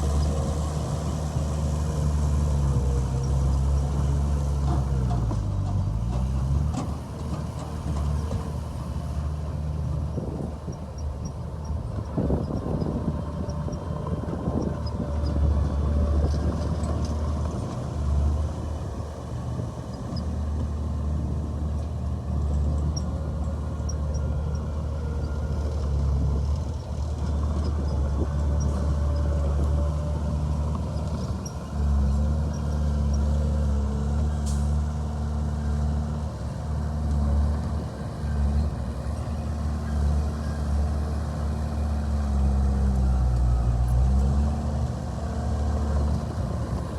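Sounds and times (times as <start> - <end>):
heavy diesel machinery drone: 0.0 - 46.9.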